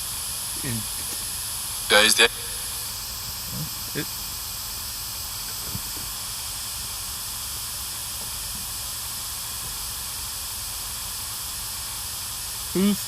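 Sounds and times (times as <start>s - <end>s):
radio static hiss: 0.0s - 6.4s, 12.7s - 13.0s.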